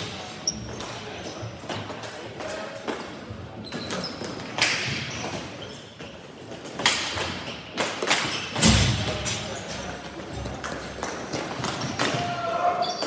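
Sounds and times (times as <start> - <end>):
hockey sticks and ball clacking: 10.4 - 13.0.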